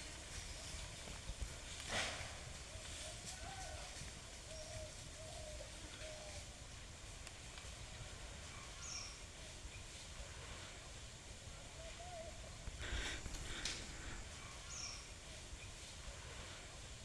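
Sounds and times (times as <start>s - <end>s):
bird calls: 4.4s - 6.6s, 8.5s - 9.9s, 11.7s - 15.8s.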